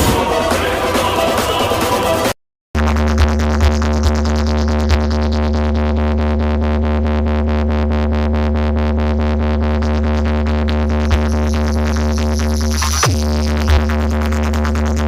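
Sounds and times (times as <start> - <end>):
electronic dance music: 0.0 - 6.0, 8.9 - 15.0.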